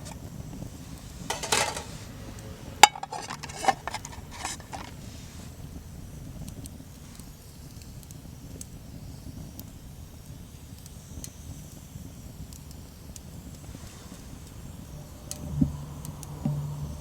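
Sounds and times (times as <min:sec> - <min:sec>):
campfire crackling: 0:00.0 - 0:17.0
low steady rumble: 0:14.2 - 0:17.0.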